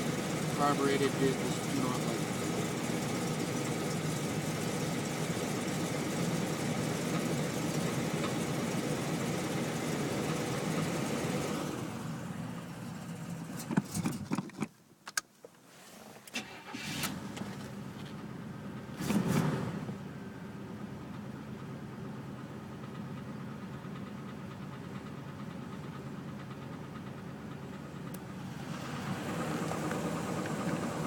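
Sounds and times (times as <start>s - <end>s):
car engine running: 0.0s - 14.8s, 16.2s - 31.0s
short loud engine burst: 18.9s - 20.0s.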